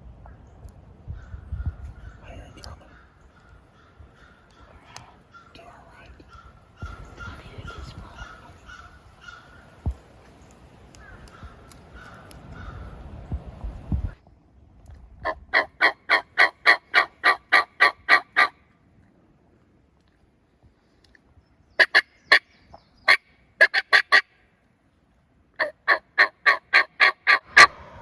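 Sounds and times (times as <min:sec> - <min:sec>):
turkey yelping: 0:15.2 - 0:18.6, 0:23.1 - 0:24.3, 0:25.6 - 0:27.9.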